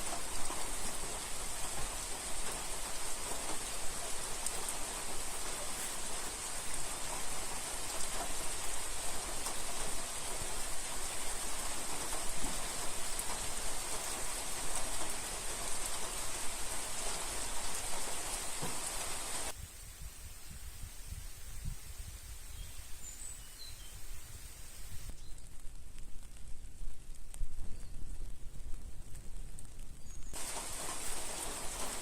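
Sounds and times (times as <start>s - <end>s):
heavy rain: 0.0s - 19.6s, 29.7s - 32.0s
quiet outdoor ambience: 0.0s - 32.0s.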